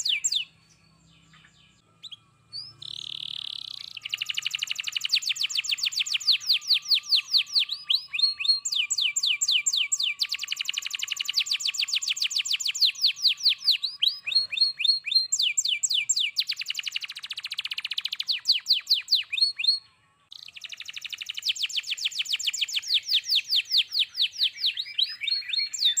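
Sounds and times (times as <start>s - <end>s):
canary singing trills: 0.0s - 26.0s.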